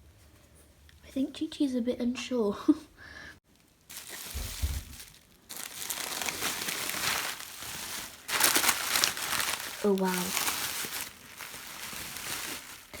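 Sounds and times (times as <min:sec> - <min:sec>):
packaging crinkling and rustling: 0:03.5 - 0:13.0
low thump: 0:04.4 - 0:05.0.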